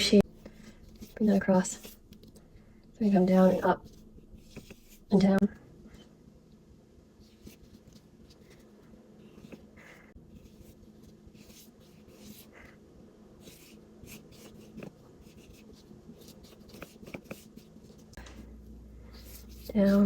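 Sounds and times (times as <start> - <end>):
paintbrush strokes on paper: 0.7 - 2.0, 3.0 - 5.4, 7.2 - 12.8, 13.4 - 20.0.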